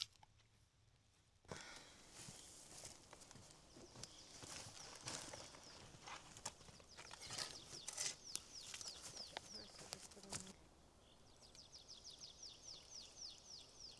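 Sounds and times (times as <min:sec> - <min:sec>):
small bird chirping: 0:03.7 - 0:13.9.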